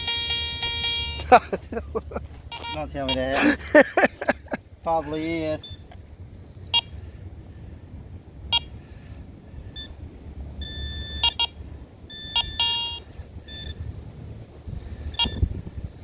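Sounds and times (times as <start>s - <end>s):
metal detector beeps: 0.0s - 1.4s, 2.5s - 3.4s, 5.6s - 5.9s, 8.5s - 8.7s, 9.8s - 10.0s, 10.6s - 13.8s, 15.1s - 15.5s
metal detector held tone: 2.5s - 3.4s.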